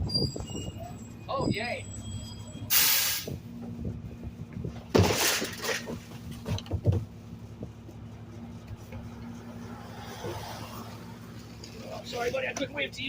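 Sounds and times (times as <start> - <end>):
truck engine humming: 0.0 - 13.0
hiss burst: 2.7 - 3.3
knocks: 5.8 - 7.8.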